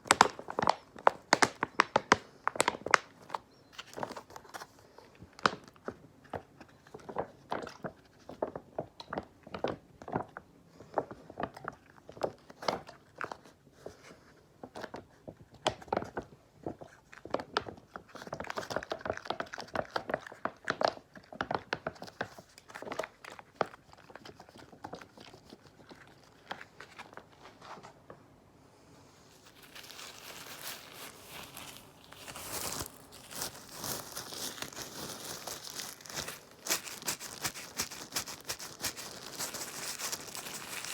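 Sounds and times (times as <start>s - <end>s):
crunchy scratching and tapping: 0.0s - 4.8s, 29.3s - 40.9s
crinkling hiss: 28.6s - 40.9s.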